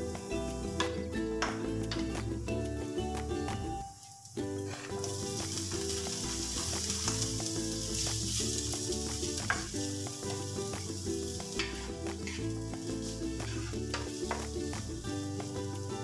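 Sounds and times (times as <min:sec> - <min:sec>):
background music: 0:00.0 - 0:16.0
vegetables sizzling in a pan: 0:00.0 - 0:16.0
wooden spatula scraping a pan: 0:04.6 - 0:05.2, 0:11.5 - 0:12.5, 0:13.4 - 0:14.5.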